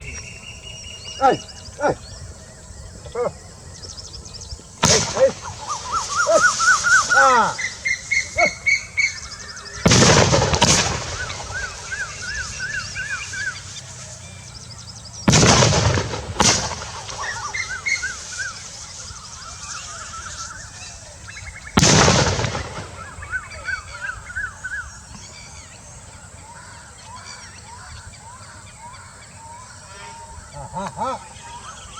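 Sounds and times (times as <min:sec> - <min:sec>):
birds chirping: 0:00.0 - 0:31.9
loud explosive bangs with echo: 0:04.6 - 0:13.8, 0:15.2 - 0:20.2, 0:21.6 - 0:23.8.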